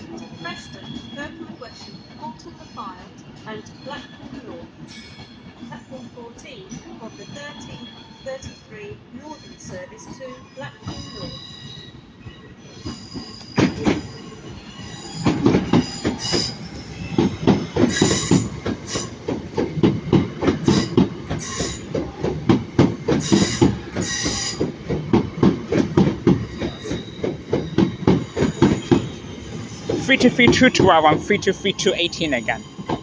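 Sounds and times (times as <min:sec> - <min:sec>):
high wheel squeal: 0:09.3 - 0:19.3, 0:20.6 - 0:21.9, 0:23.2 - 0:24.8, 0:26.4 - 0:33.0
train wheels clicking over joints: 0:12.8 - 0:33.0.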